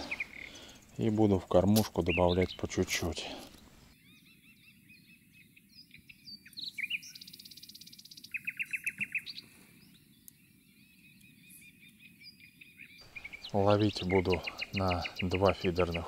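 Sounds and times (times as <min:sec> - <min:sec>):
loud clear repeated bird notes: 0:00.0 - 0:01.0, 0:11.1 - 0:16.0
songbirds singing and chirping: 0:00.0 - 0:16.0.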